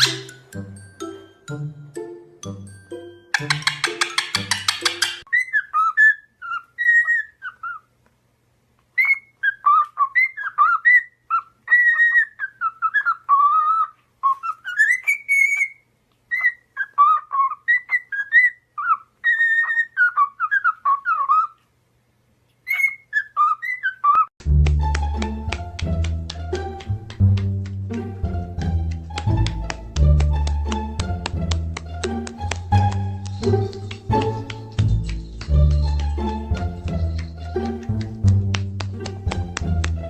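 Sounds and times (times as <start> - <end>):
parrot whistling: 0.0 - 0.5.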